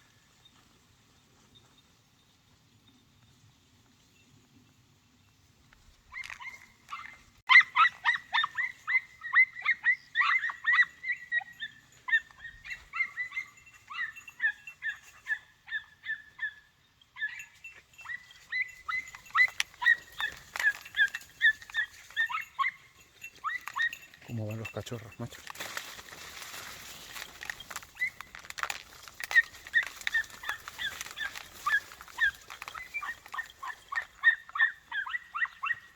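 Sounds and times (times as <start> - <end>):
puppies yelping: 6.1 - 16.6, 17.2 - 24.8, 26.6 - 35.9.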